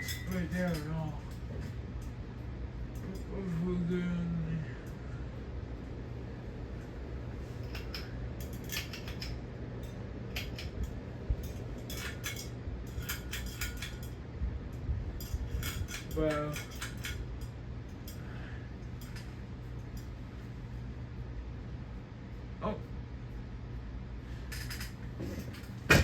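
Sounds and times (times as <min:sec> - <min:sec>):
light clinks and clicks: 0:00.0 - 0:03.6, 0:07.6 - 0:20.5, 0:24.4 - 0:25.9
ceiling fan humming: 0:00.0 - 0:26.0.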